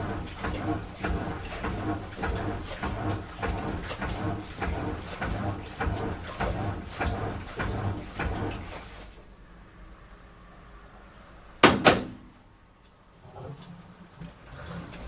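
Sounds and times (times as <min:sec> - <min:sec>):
washing machine drum turning: 0:00.0 - 0:09.0
laundry thudding and water sloshing: 0:00.0 - 0:09.4.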